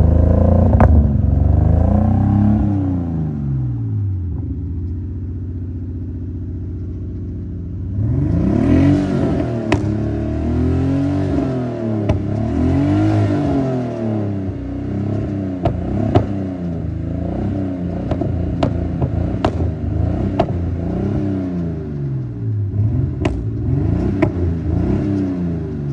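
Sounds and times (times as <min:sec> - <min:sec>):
car engine idling and revving: 0:00.0 - 0:25.9
sharp exhaust pops: 0:08.3 - 0:25.9.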